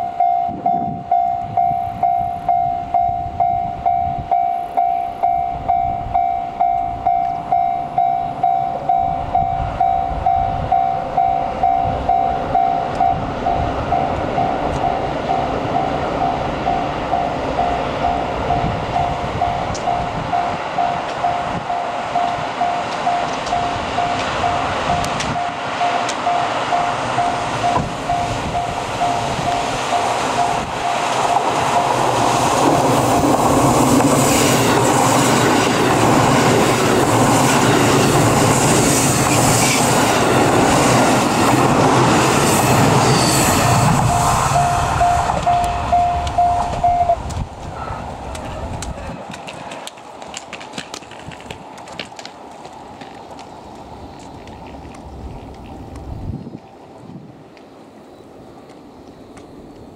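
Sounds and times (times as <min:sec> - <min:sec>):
level crossing alarm ringing: 0:00.0 - 0:32.2, 0:42.5 - 0:47.2
diesel train passing: 0:00.0 - 0:59.9.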